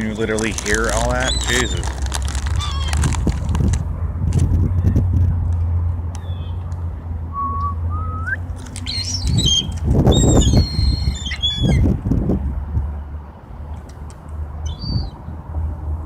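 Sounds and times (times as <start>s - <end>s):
gulls calling: 0.0s - 3.2s, 8.7s - 11.9s
steady low rumble: 1.8s - 11.0s.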